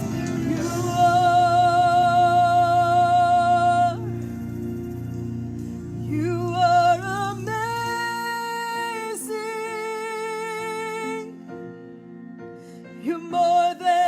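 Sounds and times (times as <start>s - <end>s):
person singing long held notes: 0.0s - 4.6s
soft instrumental backing: 0.0s - 14.0s.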